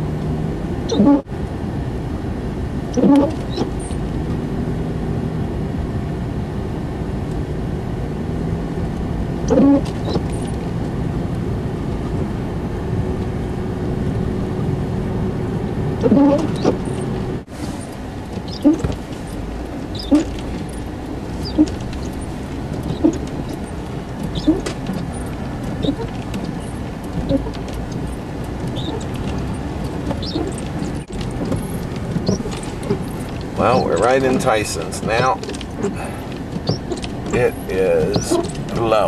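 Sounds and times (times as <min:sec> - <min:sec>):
car engine and road noise: 0:00.0 - 0:39.0
short squeak: 0:00.9 - 0:01.2, 0:02.9 - 0:04.0, 0:09.5 - 0:10.5, 0:16.0 - 0:17.0, 0:17.6 - 0:28.1, 0:28.7 - 0:34.4, 0:36.6 - 0:38.8.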